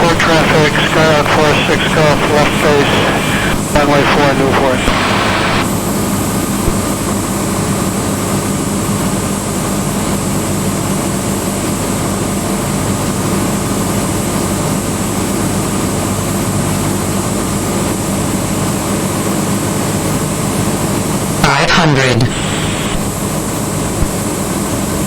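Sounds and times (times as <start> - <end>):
airplane engine and propeller droning: 0.0 - 8.7.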